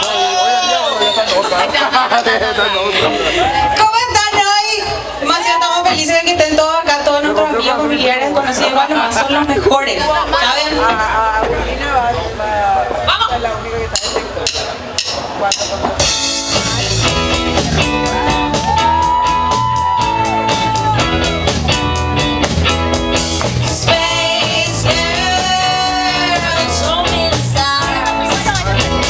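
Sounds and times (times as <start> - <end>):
drum kit beat: 0.0 - 0.5, 13.9 - 29.0
guitar: 15.9 - 29.0
person singing long notes: 23.7 - 28.3.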